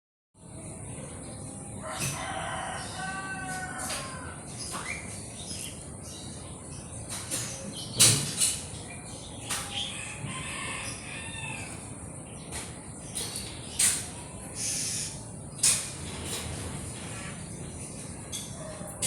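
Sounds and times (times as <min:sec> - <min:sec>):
chickens clucking: 0:16.4 - 0:19.0.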